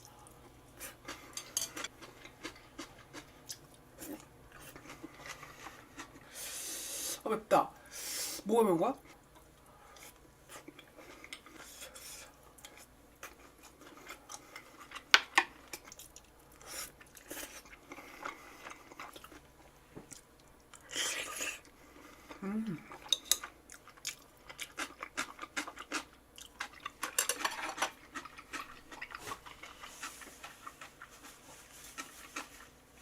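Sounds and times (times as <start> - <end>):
person chewing: 0.0 - 6.6, 10.0 - 19.5, 20.1 - 32.8.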